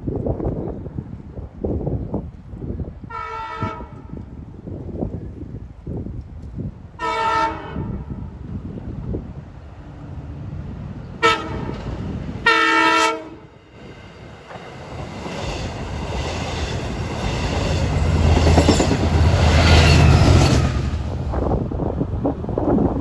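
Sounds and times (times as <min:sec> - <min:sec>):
train rumble and wheel clatter: 0:00.0 - 0:23.0
train horn: 0:03.0 - 0:04.2, 0:07.0 - 0:08.3, 0:11.2 - 0:13.6.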